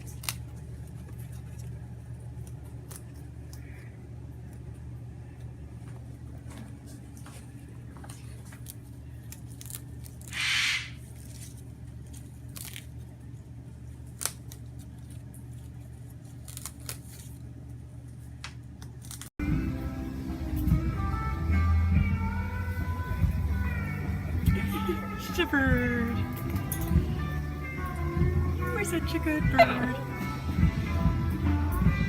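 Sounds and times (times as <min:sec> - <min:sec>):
parrot chewing with crackling clicks: 0:00.0 - 0:05.5
steady low hum: 0:00.0 - 0:32.0
guitar music: 0:19.4 - 0:32.0.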